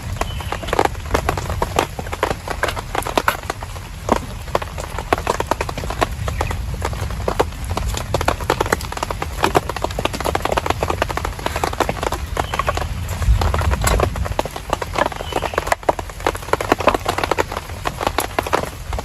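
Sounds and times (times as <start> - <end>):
heavy rain on shelter: 0.0 - 19.0.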